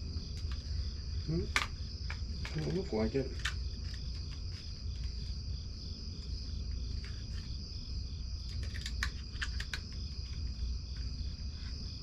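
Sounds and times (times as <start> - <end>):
crickets chirping: 0.0 - 12.0
plastic parts clicking: 1.5 - 4.4, 8.5 - 10.4.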